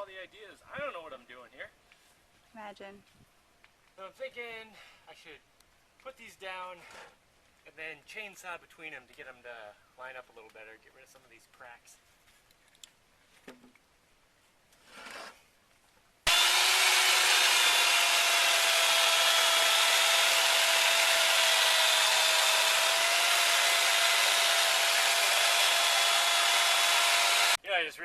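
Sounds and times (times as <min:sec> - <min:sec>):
electric chainsaw cutting wood: 0:16.3 - 0:27.6.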